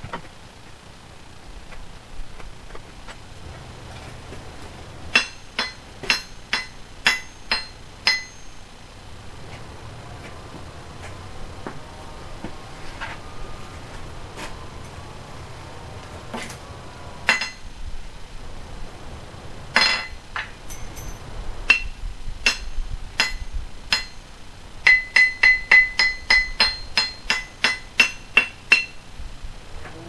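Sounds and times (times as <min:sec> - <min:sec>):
hammer striking anvil: 0:05.1 - 0:08.7, 0:16.3 - 0:16.6, 0:17.2 - 0:17.6, 0:19.7 - 0:24.2, 0:24.8 - 0:29.0.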